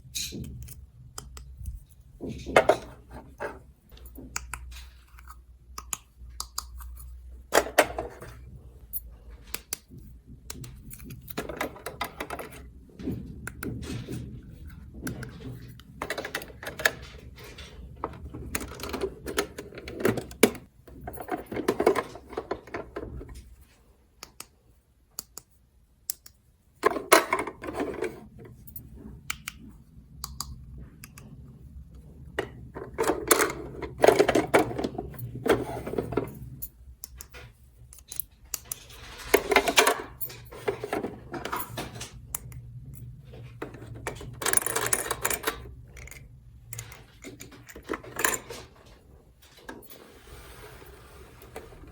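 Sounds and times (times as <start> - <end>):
rustling and scraping: 26.8 - 30.0, 30.8 - 36.8, 37.4 - 42.3, 43.0 - 51.9.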